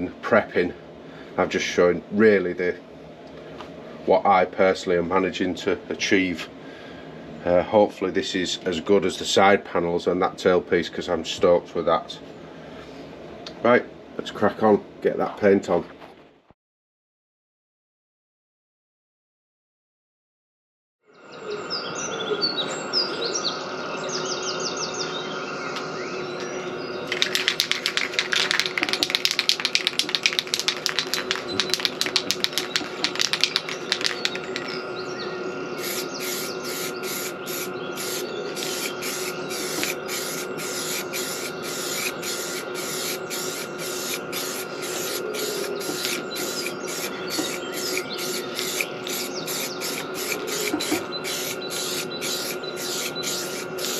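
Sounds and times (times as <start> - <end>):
birds chirping: 21.2 - 53.9
aerosol spray can hissing: 27.1 - 34.6, 35.8 - 53.9.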